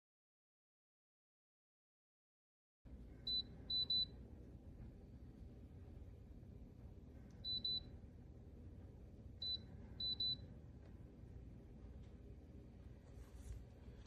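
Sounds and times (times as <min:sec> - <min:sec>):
low steady hum: 0:02.9 - 0:14.0.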